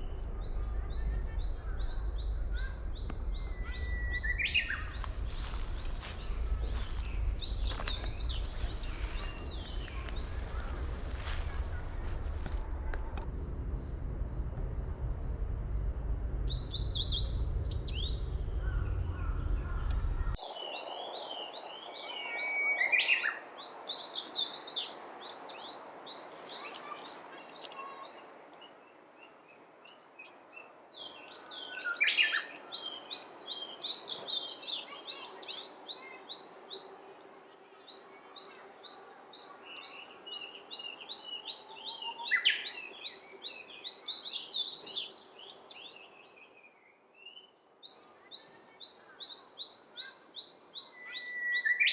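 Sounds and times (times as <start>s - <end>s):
low rumble: 0.0s - 20.4s
songbirds singing: 0.0s - 51.9s.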